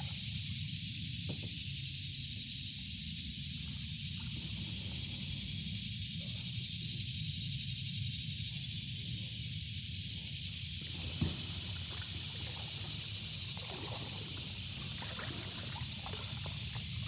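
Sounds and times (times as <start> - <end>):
high hiss of creek: 10.3 - 17.0.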